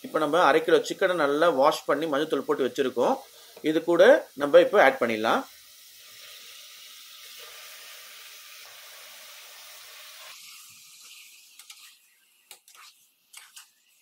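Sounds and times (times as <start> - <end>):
chicken sizzling in hot oil: 0.0 - 14.0
metal spoon scraping a pot: 11.1 - 14.0.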